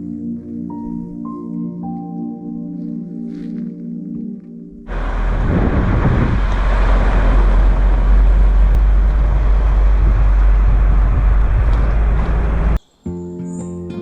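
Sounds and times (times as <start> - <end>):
deep engine rumble: 4.8 - 12.8
road and wind noise: 4.8 - 12.8.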